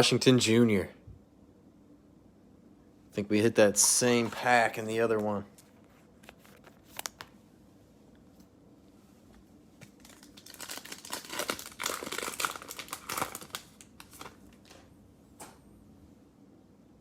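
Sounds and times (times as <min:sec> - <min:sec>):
plastic wrapper tearing and crinkling: 0:05.6 - 0:07.3, 0:09.8 - 0:14.8.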